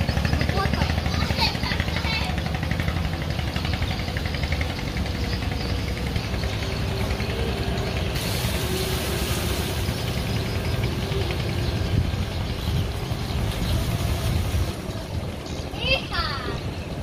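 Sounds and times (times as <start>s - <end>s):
speedboat engine rumbling: 0.0s - 17.0s
hiss of water or wind: 7.9s - 15.2s.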